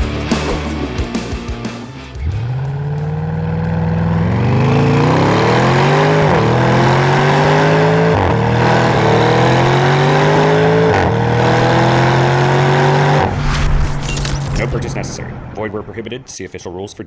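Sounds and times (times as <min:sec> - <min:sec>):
car accelerating hard: 0:02.2 - 0:15.6.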